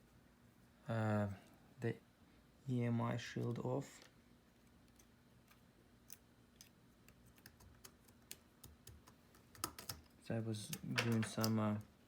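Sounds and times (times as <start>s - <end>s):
low steady hum: 0.0s - 12.0s
small clicks and taps: 4.8s - 10.1s, 10.7s - 11.9s.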